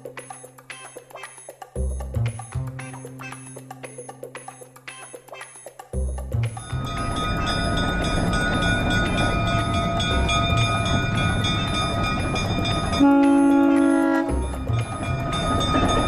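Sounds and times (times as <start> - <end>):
train rumbling: 6.6 - 16.0
train horn blast: 12.9 - 14.8.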